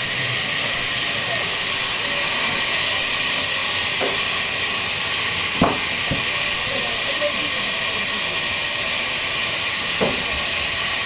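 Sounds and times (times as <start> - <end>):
sawmill machinery hissing: 0.0 - 11.0
sharp knocks of wood or metal: 4.0 - 4.3, 5.6 - 6.3, 10.0 - 10.3.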